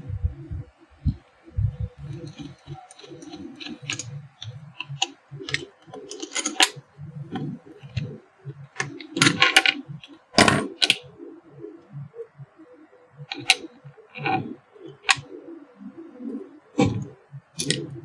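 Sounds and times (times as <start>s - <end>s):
metal parts clicking and tapping: 2.1s - 8.1s, 8.8s - 11.0s, 13.3s - 13.6s, 15.0s - 15.2s, 16.8s - 17.9s.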